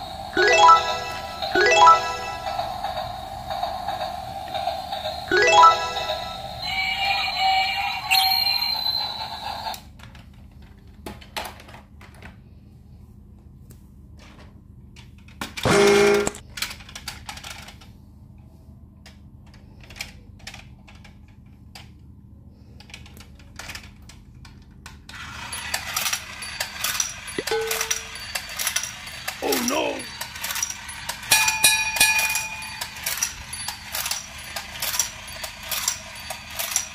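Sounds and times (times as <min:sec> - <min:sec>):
toy train electronic tune: 0:00.0 - 0:09.8, 0:25.2 - 0:36.9
loud toy tone: 0:05.3 - 0:09.4, 0:15.6 - 0:16.4, 0:27.4 - 0:28.3
plastic toys clicking and knocking: 0:10.0 - 0:12.3, 0:14.9 - 0:17.9, 0:19.0 - 0:22.1, 0:22.8 - 0:36.9.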